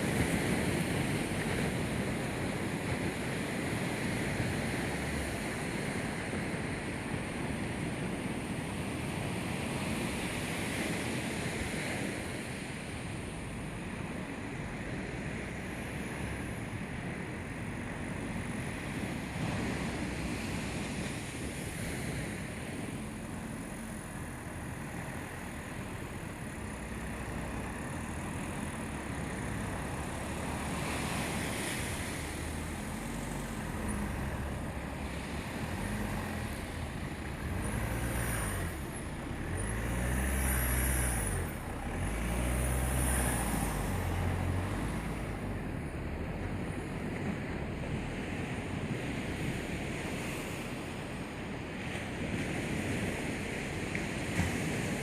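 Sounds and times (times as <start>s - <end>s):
wind-like noise: 0.0s - 55.0s
car engine revving: 24.1s - 47.2s.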